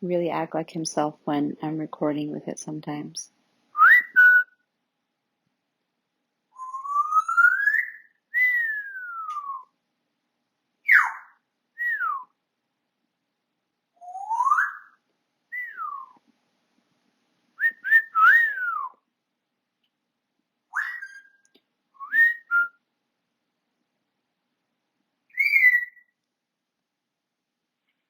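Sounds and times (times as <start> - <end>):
parrot whistling: 3.8 - 4.5, 6.6 - 9.6, 10.9 - 12.2, 14.0 - 14.9, 15.6 - 16.1, 17.6 - 18.9, 20.7 - 21.4, 22.0 - 22.7, 25.3 - 26.0.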